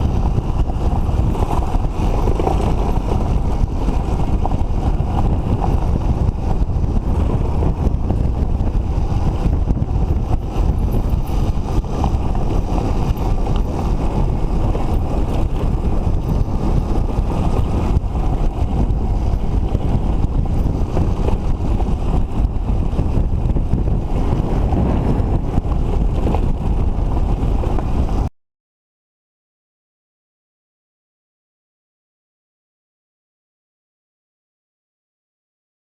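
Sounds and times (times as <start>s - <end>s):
two-stroke motorcycle engines: 0.0s - 28.3s
wind buffeting microphone: 0.0s - 28.3s.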